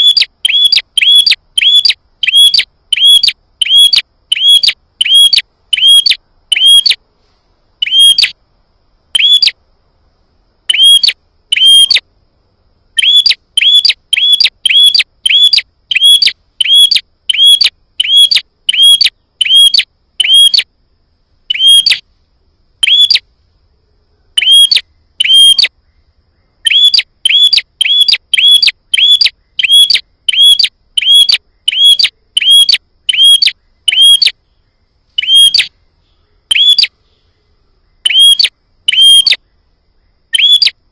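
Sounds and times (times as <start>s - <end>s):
bird chirping sharply: 0.0s - 7.0s, 7.8s - 8.4s, 9.2s - 9.6s, 10.7s - 12.0s, 13.0s - 20.7s, 21.5s - 22.0s, 22.8s - 23.2s, 24.4s - 25.8s, 26.6s - 34.5s, 35.2s - 35.7s, 36.5s - 37.2s, 38.0s - 39.4s, 40.3s - 40.8s.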